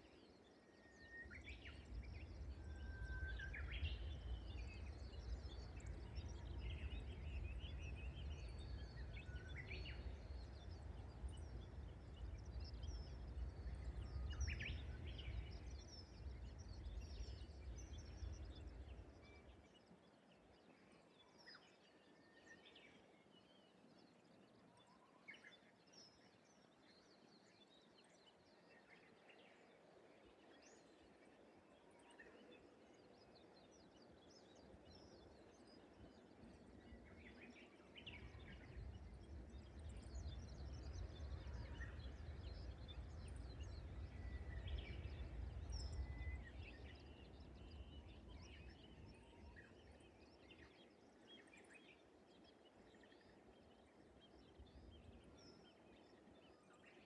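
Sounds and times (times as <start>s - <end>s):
whistled warbler song: 0.0s - 57.0s.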